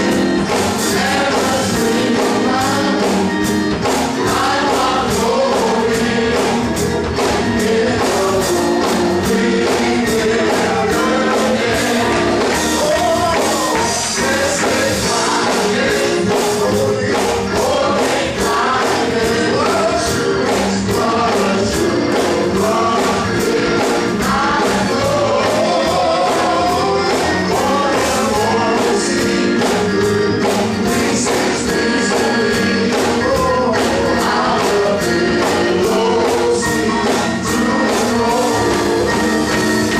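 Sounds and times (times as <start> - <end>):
band accompaniment with steady beat: 0.0 - 39.9
gospel choir singing: 0.0 - 39.9.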